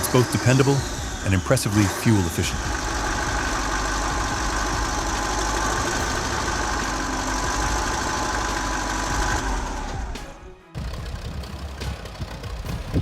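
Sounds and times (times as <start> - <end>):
diesel engine running and winding down: 0.0 - 13.0.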